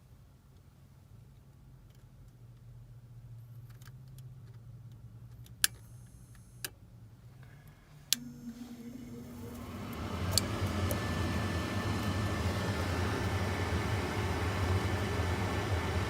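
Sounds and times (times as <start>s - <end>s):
furnace motor hum: 7.5s - 16.0s.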